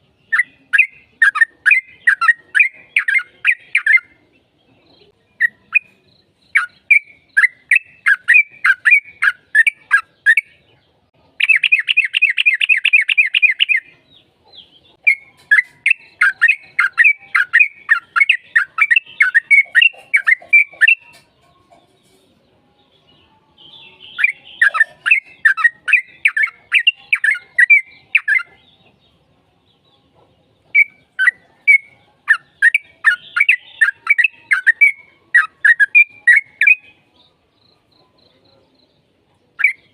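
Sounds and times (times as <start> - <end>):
bird singing bubbly chirps: 5.4 - 10.6, 11.4 - 13.9, 15.1 - 21.0, 30.8 - 37.0.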